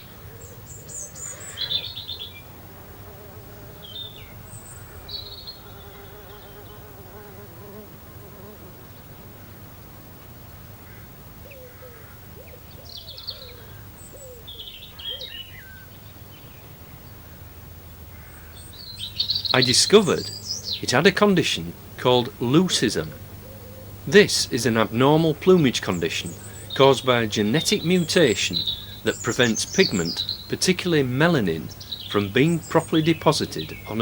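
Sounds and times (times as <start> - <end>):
small birds chirping: 0.0 - 34.0
insect buzzing: 1.2 - 9.4, 18.1 - 34.0.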